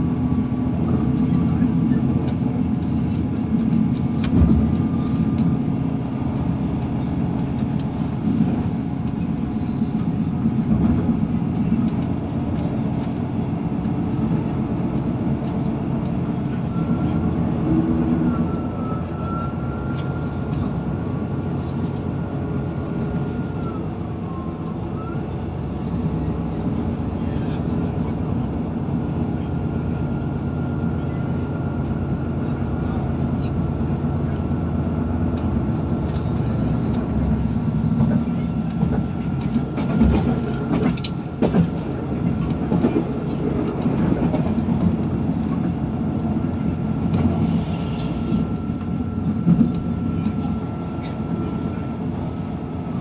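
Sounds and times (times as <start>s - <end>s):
train rumbling on rails: 0.0s - 53.0s.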